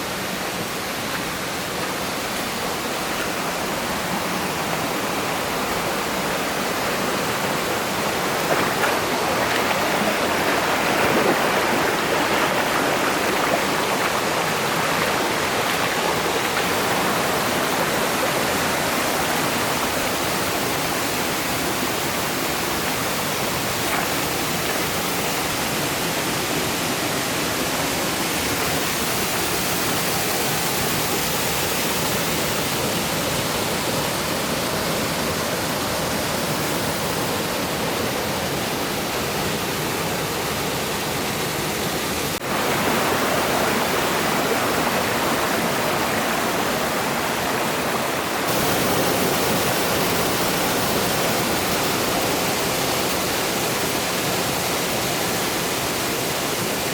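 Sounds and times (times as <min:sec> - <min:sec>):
mountain stream rushing: 0:00.0 - 0:56.9.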